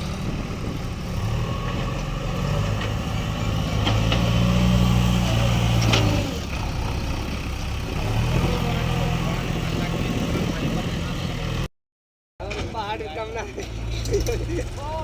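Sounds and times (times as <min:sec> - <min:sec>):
diesel engine running: 0:00.0 - 0:11.7.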